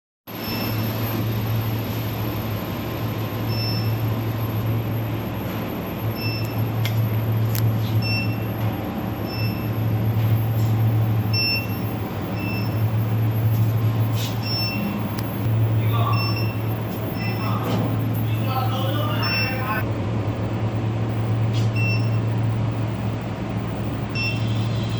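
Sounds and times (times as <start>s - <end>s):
furnace humming: 0.3s - 24.9s
short high beeps: 11.3s - 12.8s, 14.4s - 15.0s, 15.7s - 17.6s, 18.2s - 19.8s, 24.1s - 24.8s.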